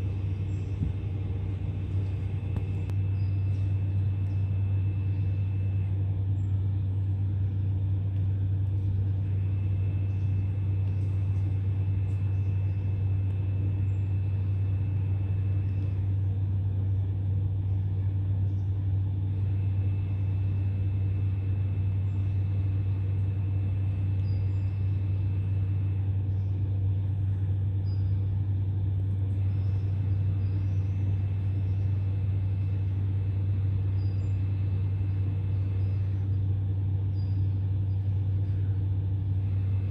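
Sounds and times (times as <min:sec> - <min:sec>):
thin high whine: 0:00.0 - 0:03.5
low mechanical drone: 0:00.0 - 0:39.9.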